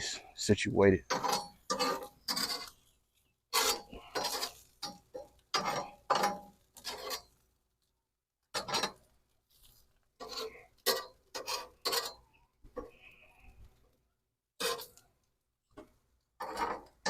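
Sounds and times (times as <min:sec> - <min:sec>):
spatula scraping grill grate: 0:01.1 - 0:07.5, 0:08.5 - 0:13.0, 0:14.6 - 0:15.0, 0:15.8 - 0:17.0.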